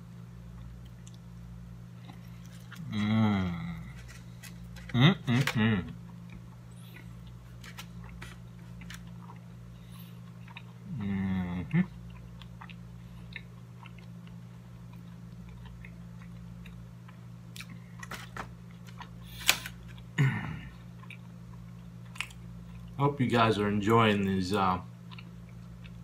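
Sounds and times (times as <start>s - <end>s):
person chewing food: 0.4s - 23.0s, 25.0s - 26.0s
person humming: 2.8s - 4.1s, 4.8s - 6.0s, 10.9s - 11.9s.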